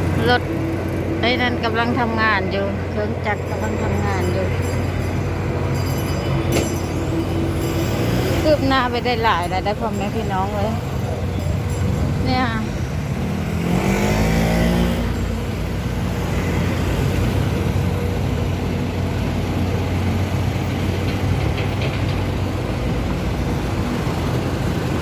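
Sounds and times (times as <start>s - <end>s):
machinery and traffic hum: 0.0s - 25.0s
vehicle passing close by: 12.8s - 17.9s.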